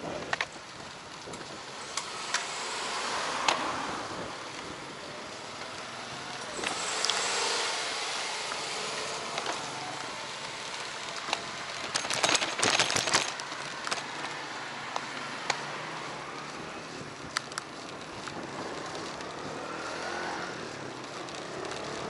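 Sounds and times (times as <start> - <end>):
wind and road noise: 0.0 - 22.0
bicycle rattling clicks: 8.3 - 20.1, 20.8 - 22.0.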